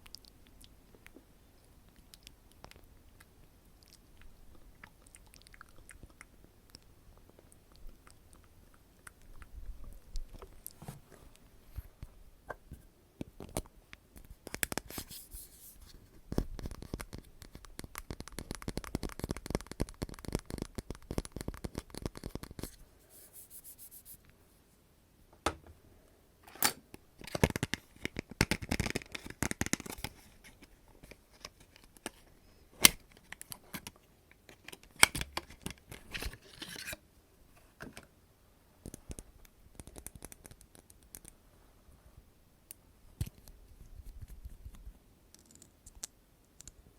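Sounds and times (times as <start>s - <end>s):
crackling and scratching: 13.4s - 24.3s, 27.2s - 37.0s, 38.8s - 41.4s, 43.2s - 46.8s.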